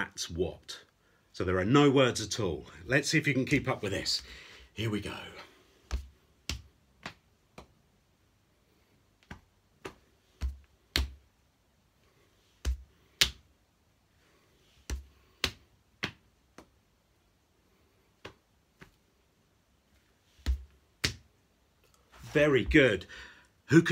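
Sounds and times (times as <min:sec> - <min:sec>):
hands patting knees and chest: 0:05.8 - 0:07.8, 0:09.1 - 0:11.4, 0:12.5 - 0:13.5, 0:14.7 - 0:16.8, 0:18.0 - 0:19.1, 0:19.9 - 0:21.4.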